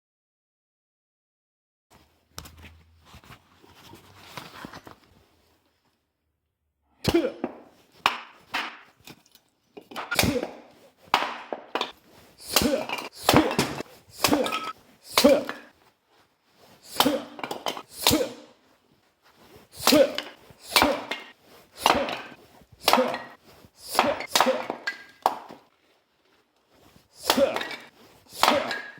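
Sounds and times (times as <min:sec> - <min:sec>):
axe chopping firewood: 0:10.0 - 0:15.7, 0:17.0 - 0:18.4, 0:19.8 - 0:21.2, 0:21.8 - 0:25.5, 0:27.2 - 0:28.9.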